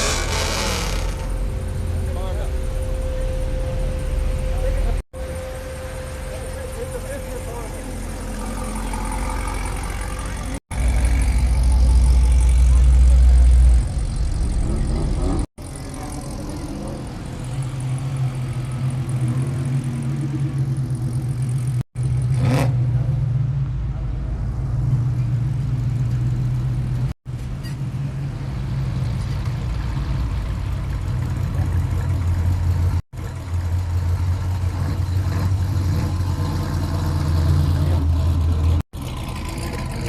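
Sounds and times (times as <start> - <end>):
car engines running: 0.0 - 40.0.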